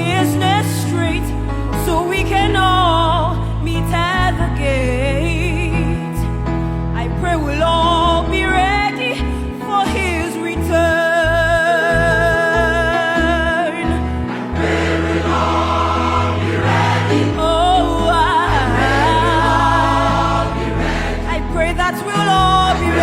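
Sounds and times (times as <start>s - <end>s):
bass line: 11.2s - 23.0s
gospel choir singing: 13.9s - 23.0s.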